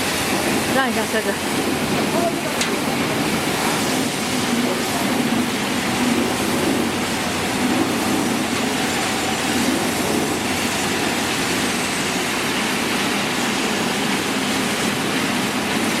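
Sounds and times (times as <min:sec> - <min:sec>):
washing machine water sprays rushing: 0:00.0 - 0:16.0.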